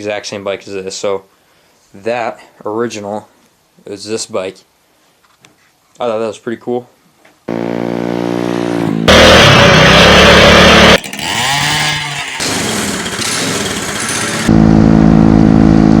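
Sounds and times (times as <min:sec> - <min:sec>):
small engine running: 0:07.5 - 0:15.9.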